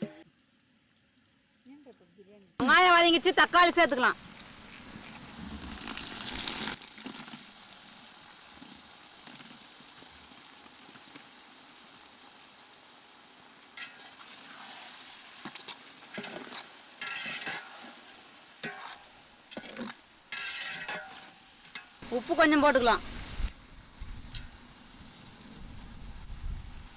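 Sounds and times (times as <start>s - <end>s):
onion and tomato sizzling in oil: 2.6s - 26.9s
stirring in a pan: 12.7s - 23.5s.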